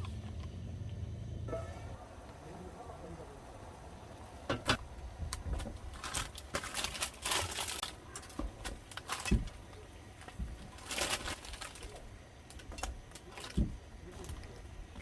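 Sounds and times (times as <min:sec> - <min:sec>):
material rustling and crinkling: 0:05.4 - 0:15.0.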